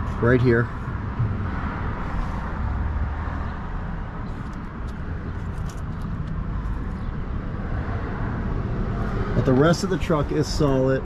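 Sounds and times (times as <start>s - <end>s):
low outdoor background rumble: 0.0s - 9.7s.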